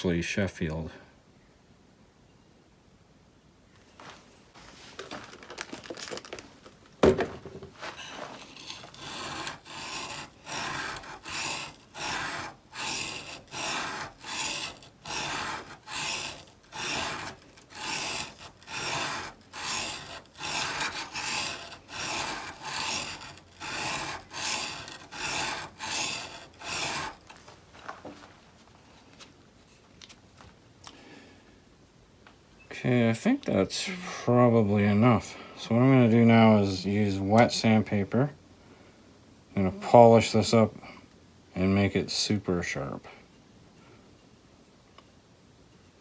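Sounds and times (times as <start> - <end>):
chisel honing on whetstone: 8.0 - 27.4.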